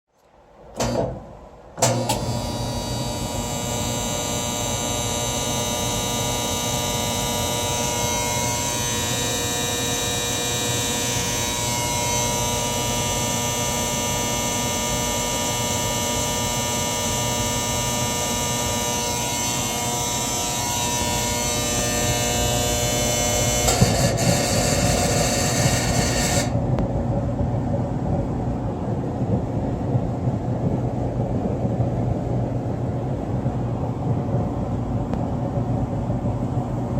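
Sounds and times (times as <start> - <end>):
dryer running sound: 0.5 - 36.9
dryer screeching humming buzz: 0.8 - 27.7.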